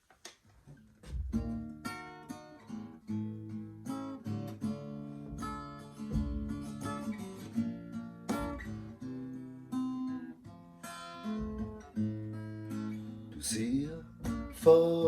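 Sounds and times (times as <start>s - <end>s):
acoustic guitar strumming chords: 1.0s - 15.0s.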